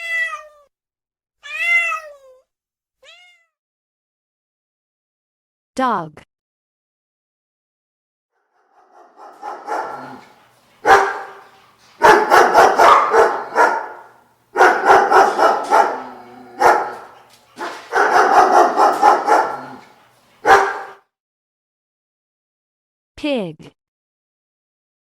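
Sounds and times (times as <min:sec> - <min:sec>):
dog barking: 0:08.6 - 0:21.0.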